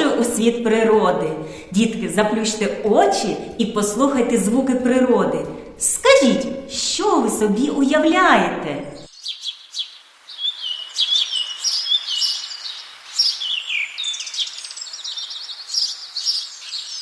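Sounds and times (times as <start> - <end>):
birds chirping and trilling: 8.8 - 17.0
faint hiss: 9.0 - 17.0.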